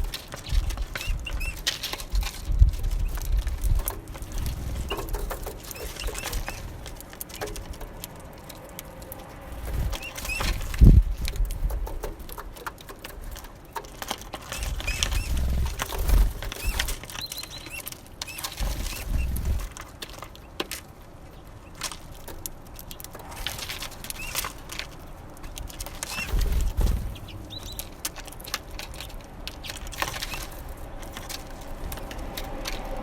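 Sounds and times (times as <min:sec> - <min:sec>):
beaks tapping on feeder: 0:00.4 - 0:01.8, 0:03.8 - 0:08.0, 0:09.8 - 0:10.8, 0:26.0 - 0:27.9
low rumble: 0:02.6 - 0:07.8, 0:26.4 - 0:28.0.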